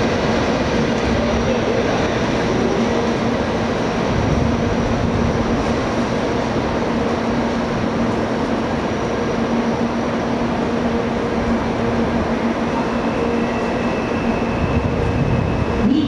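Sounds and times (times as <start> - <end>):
train rumble: 0.0 - 16.0.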